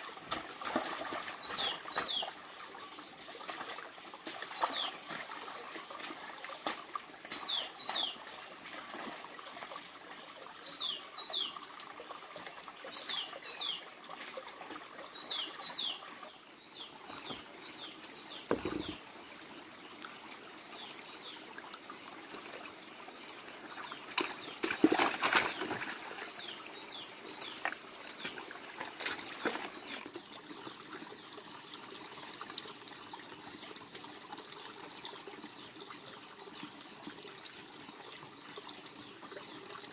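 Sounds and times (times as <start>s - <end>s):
faint trickle of water: 0.0s - 39.9s
bird chirping: 16.7s - 19.0s.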